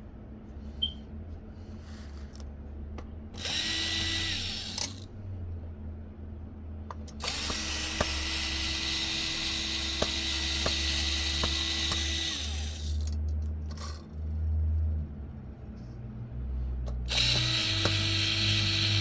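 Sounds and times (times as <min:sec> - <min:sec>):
power screwdriver whirring: 0:03.4 - 0:05.1, 0:07.1 - 0:13.2, 0:17.1 - 0:19.0.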